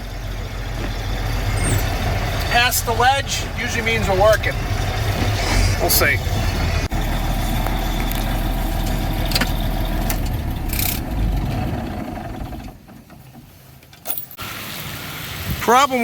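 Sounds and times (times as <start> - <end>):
diesel truck engine running: 0.0 - 13.8.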